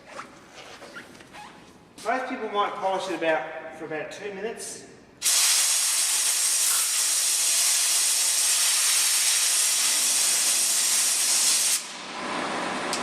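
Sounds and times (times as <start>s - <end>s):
compressed air hissing: 5.2s - 11.9s.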